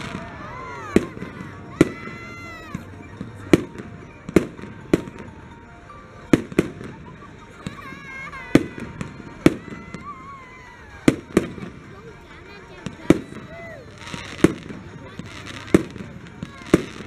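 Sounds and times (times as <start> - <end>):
fireworks bangs: 0.0 - 5.6, 6.2 - 11.9, 12.7 - 17.0.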